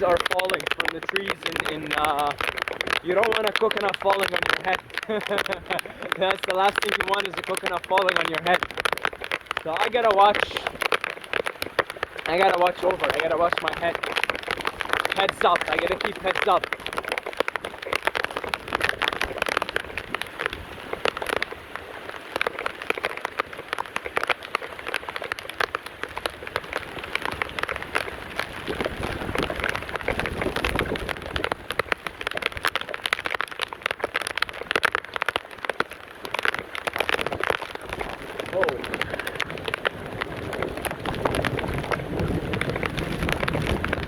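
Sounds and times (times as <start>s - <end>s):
heavy rain pouring: 0.0s - 44.0s.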